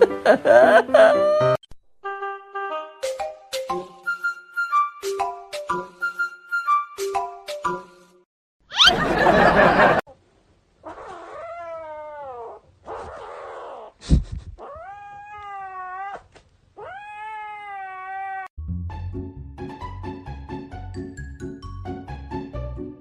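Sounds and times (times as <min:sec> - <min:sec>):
light music: 0:00.0 - 0:08.2, 0:18.6 - 0:23.0
cat yowling: 0:10.8 - 0:13.9, 0:14.6 - 0:18.5.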